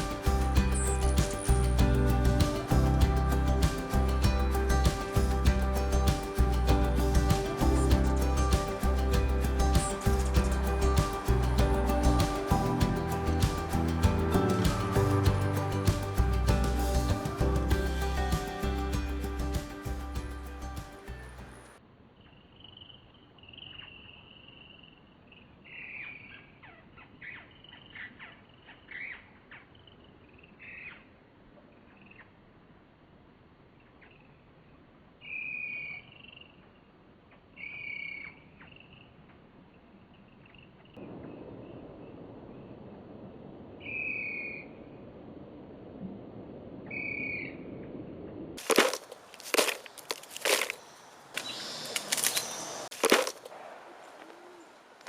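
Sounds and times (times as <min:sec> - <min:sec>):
birds calling: 0:00.0 - 0:21.7, 0:49.2 - 0:55.0
low steady hum: 0:00.0 - 0:21.8.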